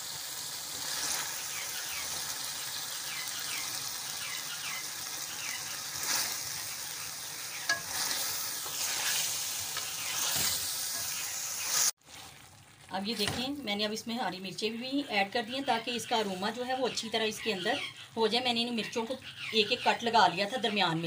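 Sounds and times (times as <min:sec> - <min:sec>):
food sizzling in a pot: 0:00.0 - 0:17.6
spatula scraping a pot: 0:07.6 - 0:12.4.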